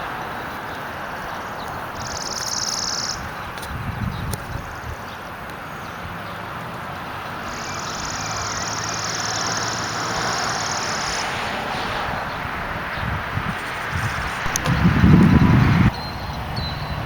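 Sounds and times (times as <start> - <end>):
vehicle passing: 5.7 - 17.0.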